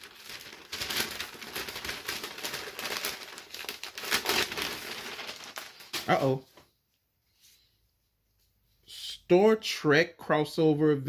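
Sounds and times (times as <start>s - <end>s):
paper and plastic crinkling: 0.0s - 6.6s.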